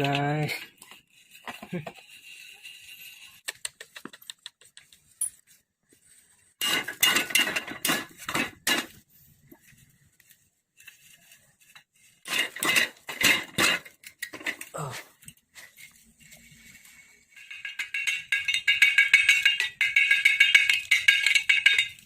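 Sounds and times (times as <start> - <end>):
metal tools clinking and clattering: 5.2 - 5.5, 6.6 - 9.0, 10.8 - 16.6, 17.2 - 22.0.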